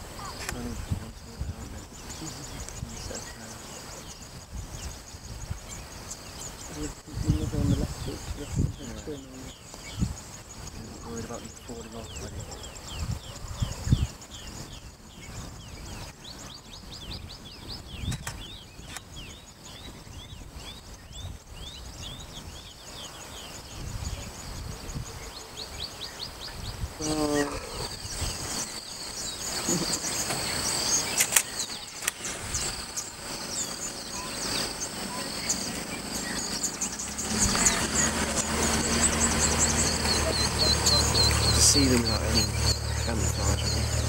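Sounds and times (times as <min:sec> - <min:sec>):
birds chirping: 0:00.0 - 0:44.0
low engine hum: 0:34.8 - 0:44.0.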